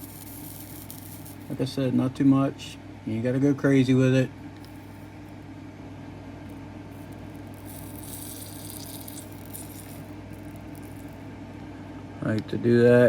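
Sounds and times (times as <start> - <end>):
solder flux sizzling: 0.0 - 1.8, 4.5 - 12.0
steady low hum: 0.0 - 13.0.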